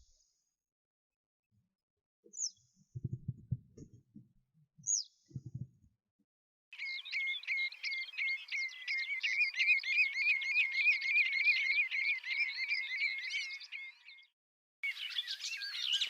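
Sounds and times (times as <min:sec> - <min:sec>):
songbird chirping: 0:06.8 - 0:16.0.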